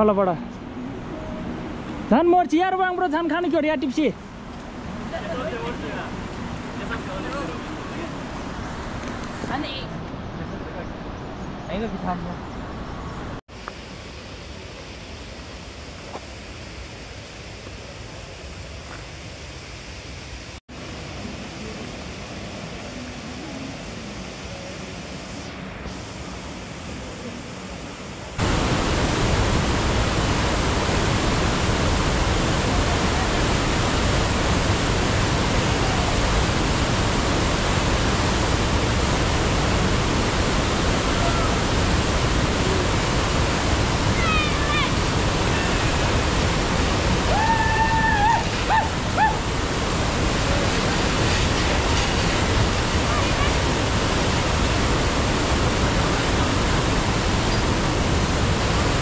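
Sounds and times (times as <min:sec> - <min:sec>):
rush of fast-flowing water: 0:20.5 - 0:59.0.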